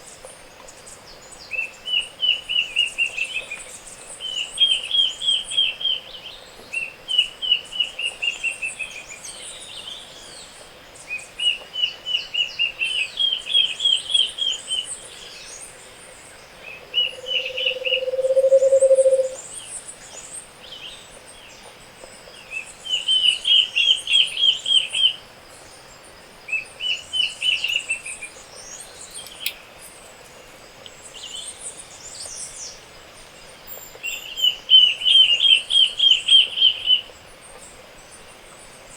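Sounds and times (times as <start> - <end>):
low hollow bird trill: 16.6 - 19.4
high fast bird trill: 17.0 - 19.4
thin high bird chirps: 17.0 - 19.4.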